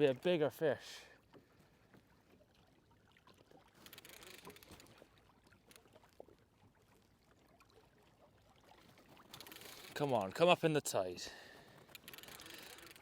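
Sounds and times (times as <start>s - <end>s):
water lapping around a kayak: 0.0s - 13.0s
small clicks and knocks: 11.8s - 13.0s.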